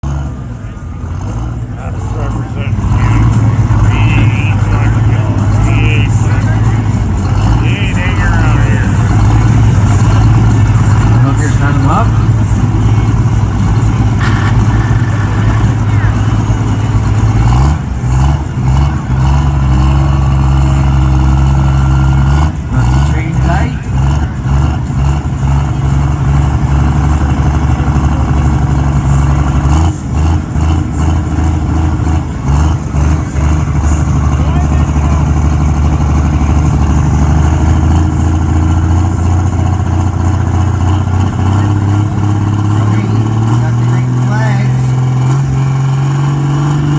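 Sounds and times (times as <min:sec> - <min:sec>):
heavy engine under load: 0:00.0 - 0:46.9.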